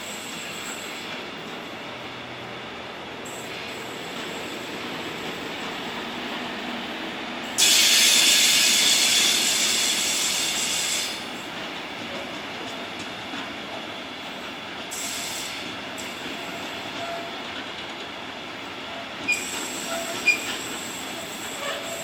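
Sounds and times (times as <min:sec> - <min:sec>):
train wheels rolling on rails: 0:00.0 - 0:22.0
wheels squealing on rails: 0:03.3 - 0:06.7, 0:07.4 - 0:11.4, 0:14.9 - 0:17.6, 0:18.7 - 0:22.0.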